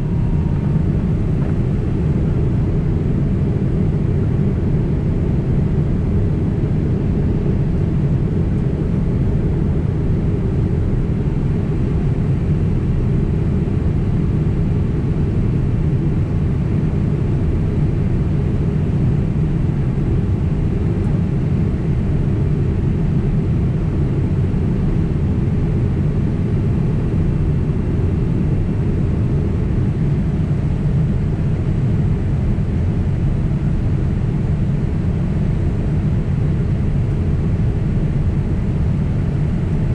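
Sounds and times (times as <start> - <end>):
airflow: 0.0 - 2.7
jet engines rumbling: 0.0 - 39.9.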